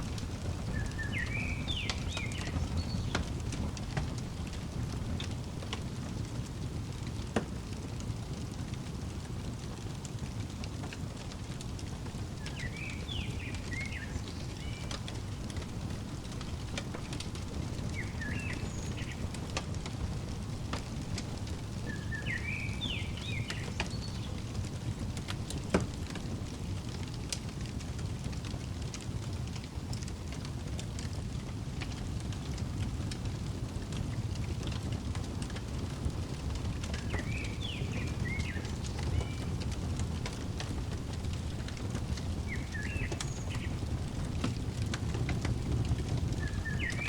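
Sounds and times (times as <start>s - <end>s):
songbird chirping: 0.0s - 5.4s, 11.8s - 25.7s, 36.0s - 47.0s
crackling fireplace: 0.0s - 47.0s.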